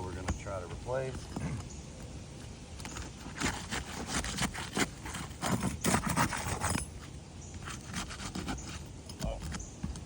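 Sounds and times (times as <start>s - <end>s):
scraping and knocking on roof shingles: 2.8s - 10.0s.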